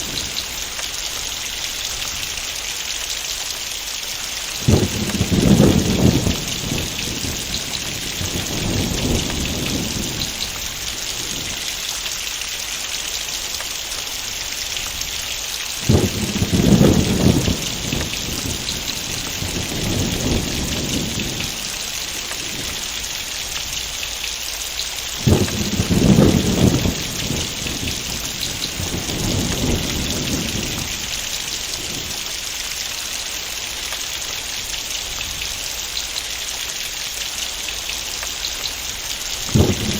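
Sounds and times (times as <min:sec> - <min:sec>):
thunder rumbling: 0:00.0 - 0:02.4, 0:04.5 - 0:11.8, 0:15.8 - 0:24.0, 0:25.0 - 0:32.6, 0:38.4 - 0:39.9
heavy rain: 0:00.0 - 0:39.9.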